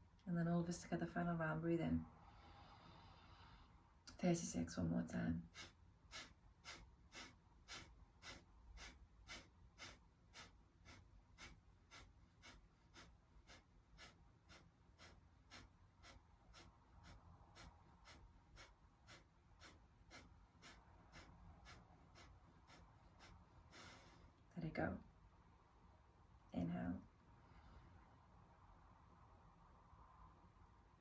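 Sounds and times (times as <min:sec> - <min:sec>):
quick forceful nasal exhalations: 0:05.5 - 0:24.3.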